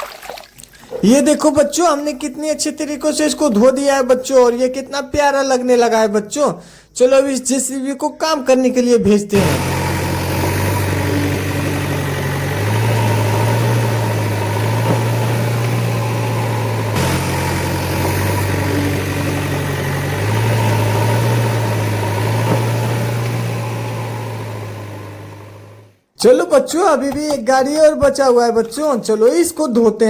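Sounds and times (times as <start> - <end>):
engine idling: 9.4 - 26.0.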